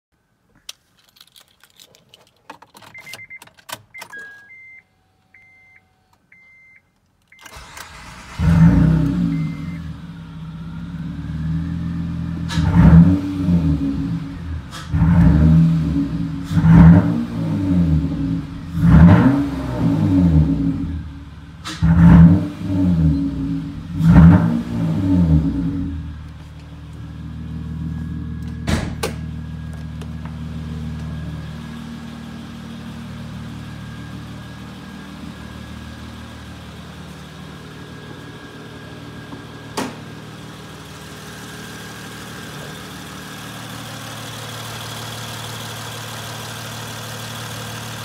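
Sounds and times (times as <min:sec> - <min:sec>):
keys jangling: 0:00.7 - 0:03.8
car warning chime beeping: 0:03.0 - 0:07.8, 0:09.2 - 0:10.0
car engine starting and revving: 0:07.4 - 0:48.0.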